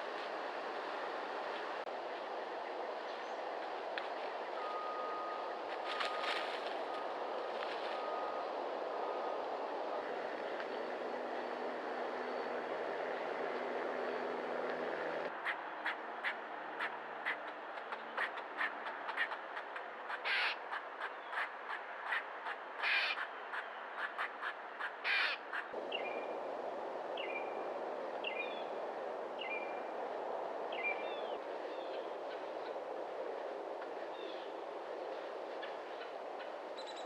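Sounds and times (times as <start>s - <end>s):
crow calling harshly: 20.2s - 20.6s, 22.8s - 23.2s, 24.8s - 25.4s.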